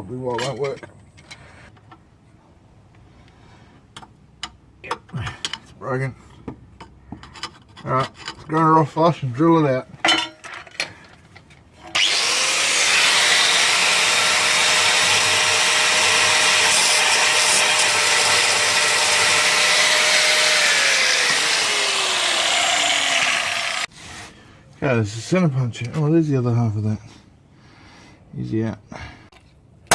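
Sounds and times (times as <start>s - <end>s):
angle grinder grinding metal: 11.9s - 24.3s.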